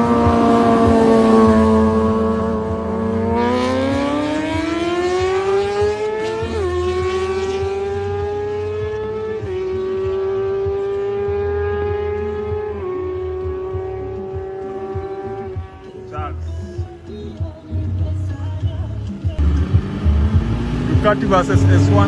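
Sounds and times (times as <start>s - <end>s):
motorcycle engine screaming: 0.0s - 10.6s, 19.4s - 22.0s.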